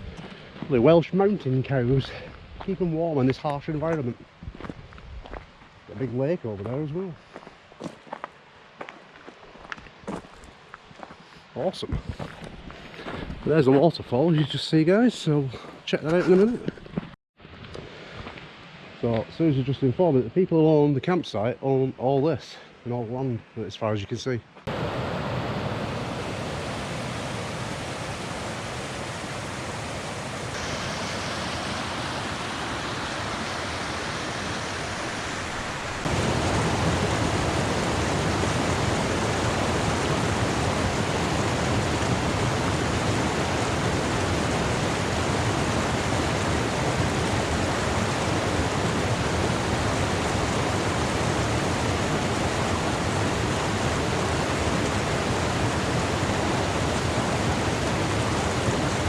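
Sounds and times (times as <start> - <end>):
waterfall rushing: 24.7 - 59.0.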